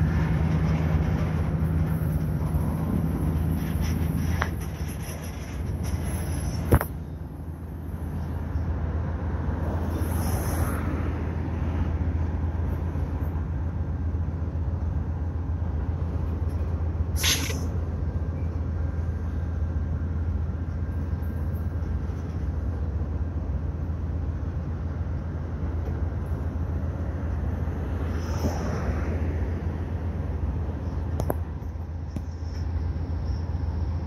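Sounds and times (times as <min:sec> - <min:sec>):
freight train rumbling on rails: 0:00.0 - 0:34.0
sharp high-pitched noise: 0:17.2 - 0:17.7.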